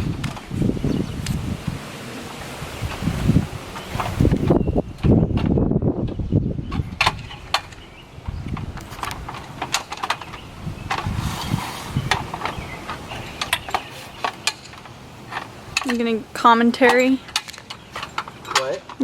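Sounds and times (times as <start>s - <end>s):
light clicks and clanks: 8.5s - 11.1s, 12.1s - 19.0s.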